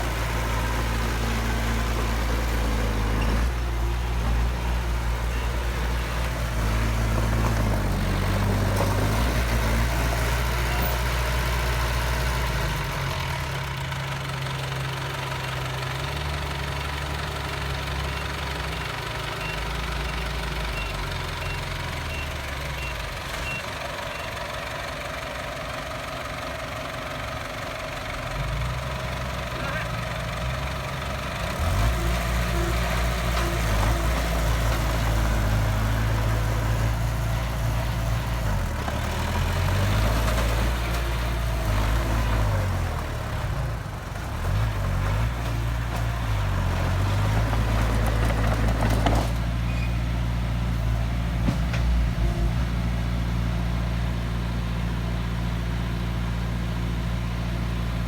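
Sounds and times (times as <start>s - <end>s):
diesel engine revving and idling: 0.0s - 58.0s.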